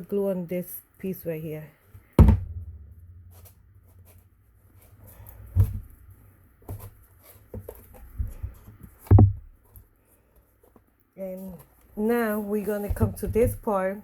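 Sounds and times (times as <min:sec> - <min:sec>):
dull thumps on tabletop: 0:02.2 - 0:03.6, 0:09.1 - 0:09.5.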